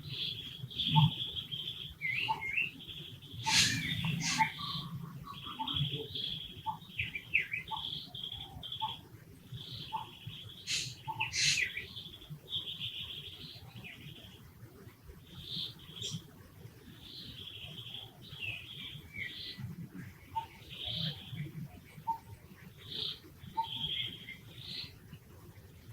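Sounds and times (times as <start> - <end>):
high-pitched animal chirping: 3.5 - 4.8.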